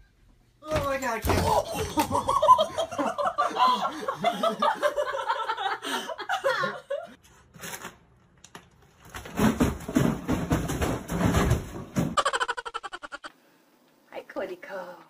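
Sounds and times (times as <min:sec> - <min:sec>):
bag thumping down carpeted stairs: 0:09.2 - 0:12.2.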